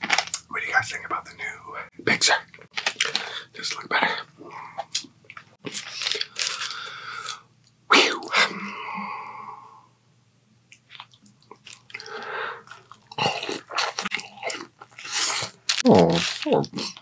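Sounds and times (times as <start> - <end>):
man chewing: 10.7 - 17.0.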